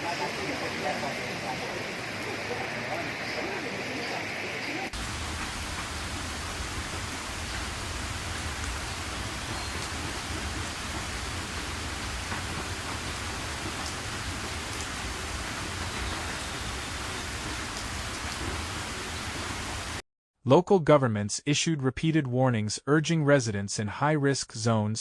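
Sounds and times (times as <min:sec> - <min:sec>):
heavy rain hissing: 0:00.0 - 0:20.0
rain drop ticks: 0:04.9 - 0:19.7.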